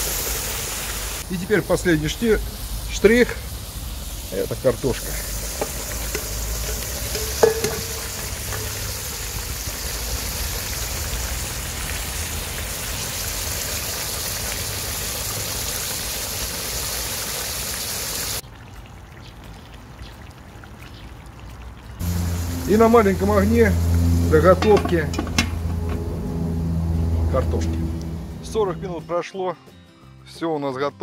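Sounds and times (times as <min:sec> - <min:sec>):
food sizzling in a pot: 0:00.0 - 0:18.4, 0:22.0 - 0:27.2
metal clink: 0:05.6 - 0:08.8.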